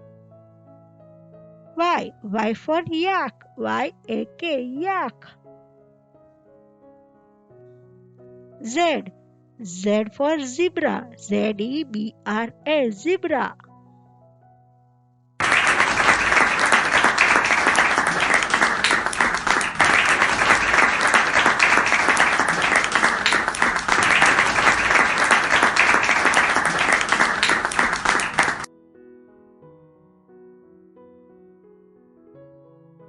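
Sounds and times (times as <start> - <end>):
crowd clapping: 15.4 - 28.7.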